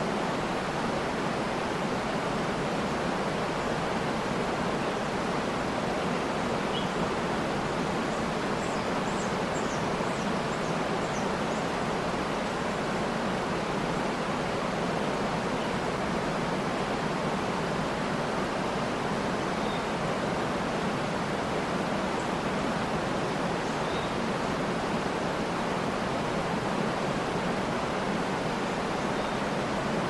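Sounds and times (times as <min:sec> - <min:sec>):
waterfall roaring: 0:00.0 - 0:30.0
faint high bird chirps: 0:06.7 - 0:07.0, 0:19.6 - 0:19.9, 0:29.2 - 0:29.5.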